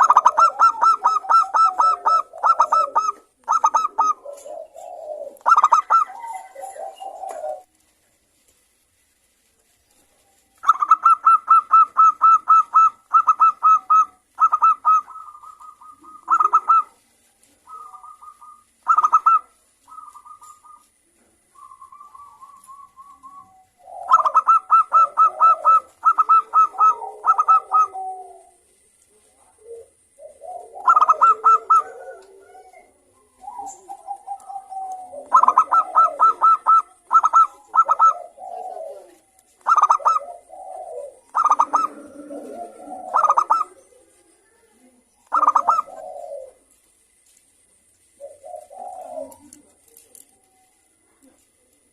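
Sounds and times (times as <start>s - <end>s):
high staccato dove coos: 0.0s - 7.7s, 10.6s - 17.0s, 21.6s - 28.6s, 29.6s - 44.0s, 45.3s - 46.6s
low soft dove coos: 0.0s - 8.7s, 9.6s - 51.9s.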